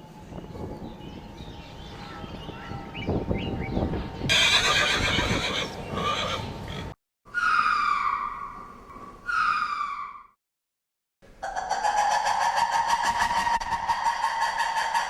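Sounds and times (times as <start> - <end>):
horse whinnying: 4.3 - 8.0.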